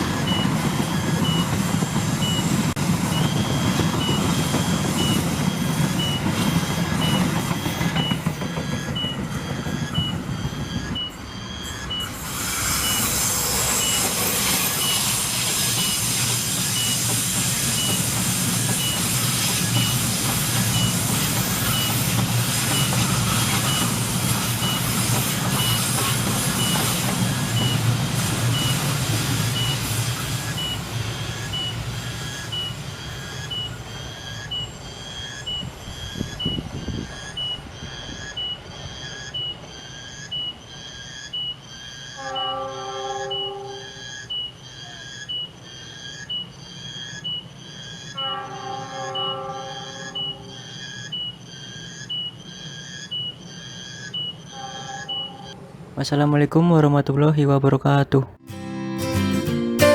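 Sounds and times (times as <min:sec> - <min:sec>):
train wheels rumbling on rail: 0:00.0 - 0:58.4
short high beep: 0:12.8 - 0:13.2, 0:13.8 - 0:14.2, 0:54.2 - 0:55.6.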